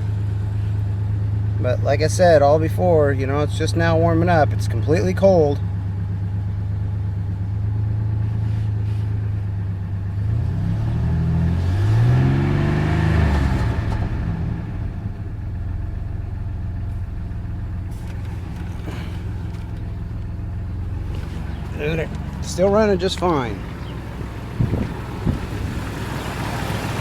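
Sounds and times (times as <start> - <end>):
truck engine idling: 0.0 - 10.4, 13.3 - 27.0
engine revving rising and falling: 10.2 - 15.0.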